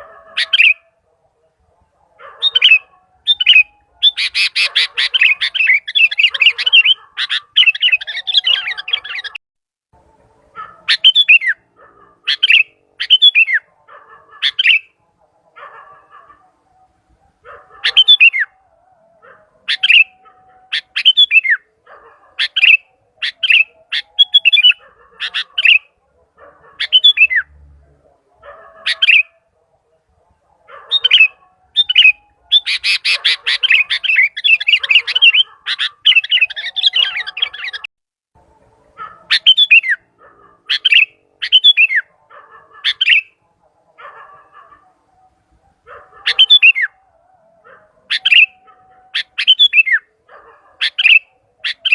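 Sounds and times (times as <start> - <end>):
bulbul calling: 0.0 - 1.0, 2.2 - 9.4, 10.7 - 13.7, 14.4 - 15.0, 17.7 - 18.6, 19.7 - 21.7, 22.3 - 26.0, 26.6 - 27.4, 28.8 - 29.4, 30.8 - 37.9, 39.1 - 42.1, 42.8 - 43.4, 46.0 - 47.0, 48.1 - 50.1, 50.7 - 51.9.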